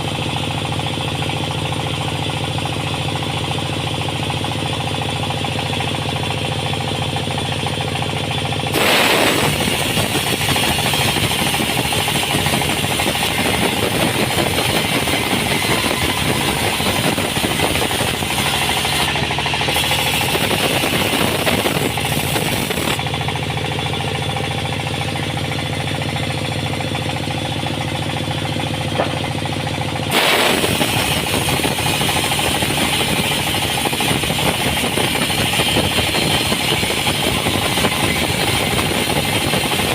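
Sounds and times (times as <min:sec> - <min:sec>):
engine hum: 0:00.0 - 0:39.9
saw blade cutting wood: 0:08.7 - 0:23.1, 0:28.9 - 0:29.4, 0:30.1 - 0:39.9.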